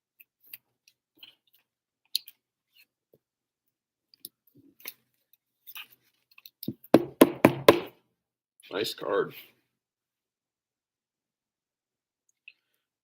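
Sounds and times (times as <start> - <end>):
sharp knocks on table: 6.7 - 7.9.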